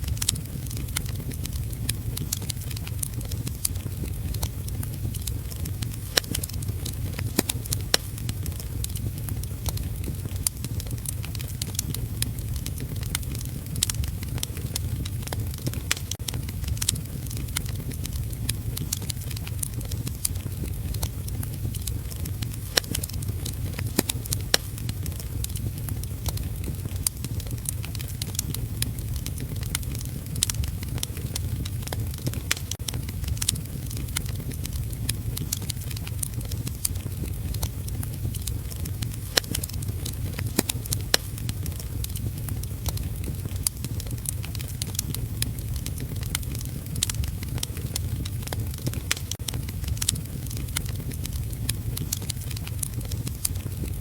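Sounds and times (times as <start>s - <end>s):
low rumble: 0.0s - 54.0s
wood fire crackling and popping: 0.0s - 54.0s.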